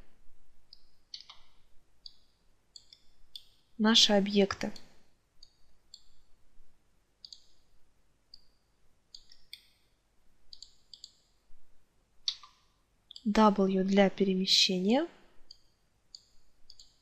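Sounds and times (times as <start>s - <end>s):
computer mouse clicks: 0.7s - 3.6s, 4.6s - 6.3s, 7.2s - 7.6s, 8.3s - 9.8s, 10.5s - 11.3s, 12.3s - 13.4s, 15.4s - 17.0s.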